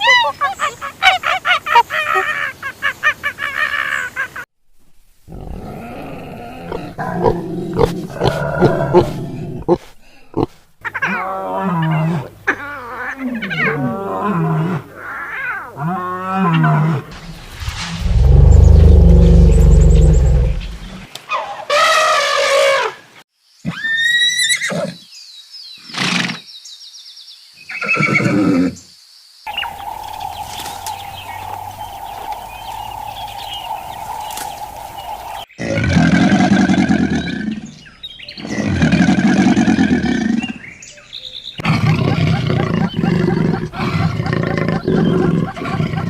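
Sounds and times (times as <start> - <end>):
long low animal calls: 29.5 - 37.4.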